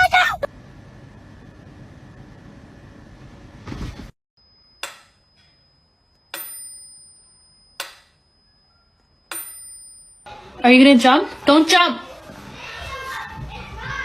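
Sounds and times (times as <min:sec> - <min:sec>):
sharp dings with ringing tail: 0:04.4 - 0:10.3
steady background noise: 0:04.8 - 0:14.0.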